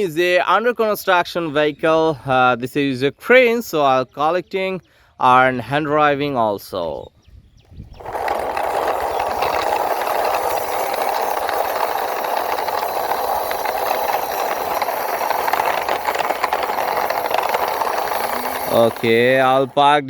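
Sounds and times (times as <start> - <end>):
toy truck rolling rattle: 7.8 - 20.0.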